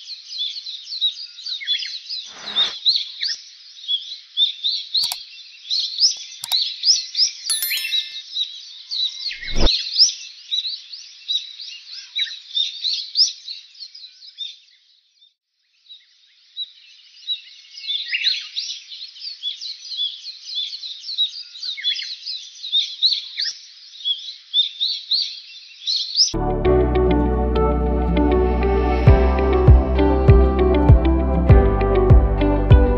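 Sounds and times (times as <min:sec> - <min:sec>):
small birds chirping: 0:15.8 - 0:26.4.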